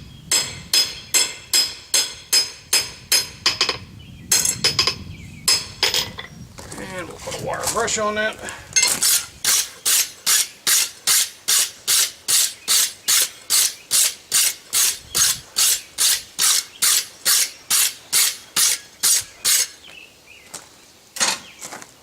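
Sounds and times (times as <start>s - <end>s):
wire brush scrubbing steel: 8.8s - 19.8s.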